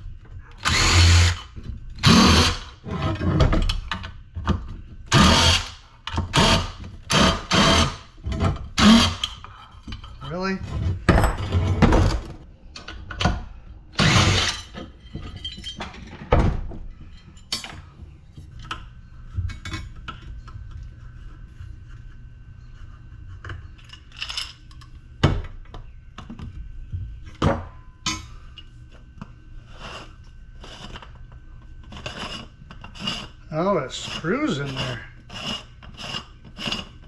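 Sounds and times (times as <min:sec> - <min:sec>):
metal parts clanking: 0:14.0 - 0:16.3, 0:17.2 - 0:17.9.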